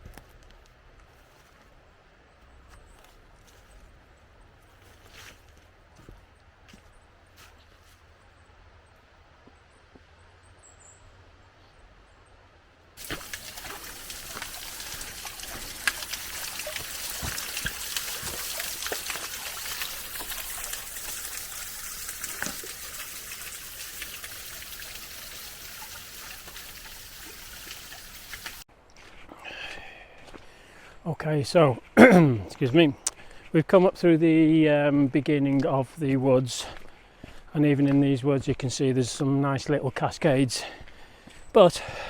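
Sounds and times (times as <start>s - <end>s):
stream splashing over rocks: 13.0s - 28.6s.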